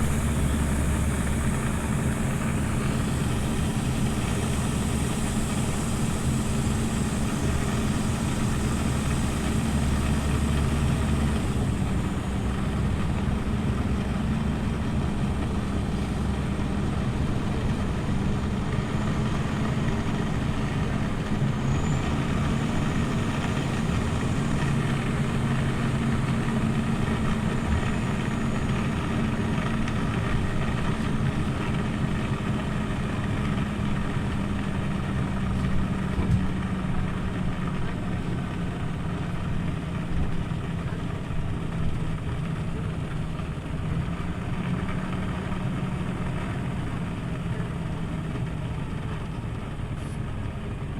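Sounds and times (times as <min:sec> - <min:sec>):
deep low hum: 0:00.0 - 0:21.2
bus engine running: 0:00.0 - 0:50.9.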